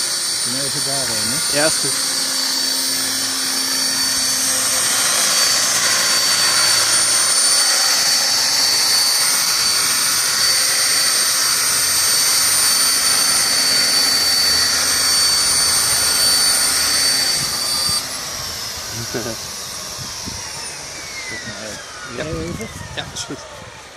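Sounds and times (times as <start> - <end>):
high-pitched motor whine: 0.0 - 23.9
rotor blades rushing: 0.0 - 23.9.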